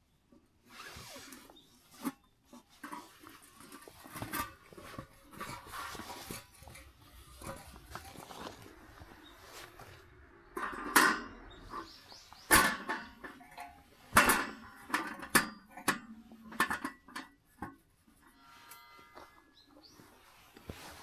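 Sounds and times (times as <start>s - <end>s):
objects knocking and clattering: 2.6s - 17.8s.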